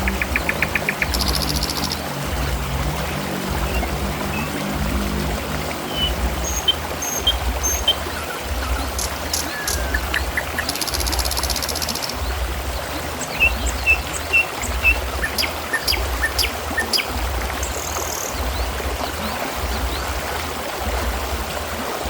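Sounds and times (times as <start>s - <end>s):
small birds chirping: 0.0s - 2.6s, 5.9s - 20.1s
low repeating pulse: 0.0s - 11.5s
water trickling: 0.0s - 22.0s.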